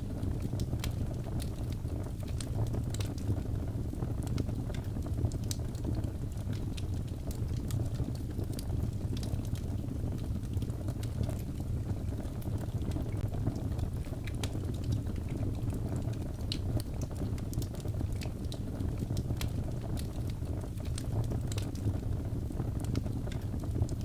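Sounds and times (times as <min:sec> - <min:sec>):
burning wood crackling and popping: 0:00.0 - 0:24.0
low rumble of flames: 0:00.0 - 0:24.0.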